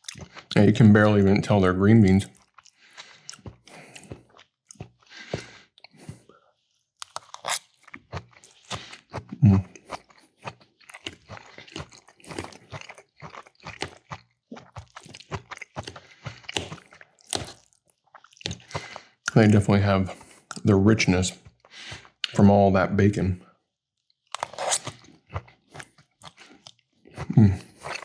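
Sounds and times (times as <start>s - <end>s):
mouth chewing and crunching food: 0.0s - 22.4s, 24.1s - 28.0s.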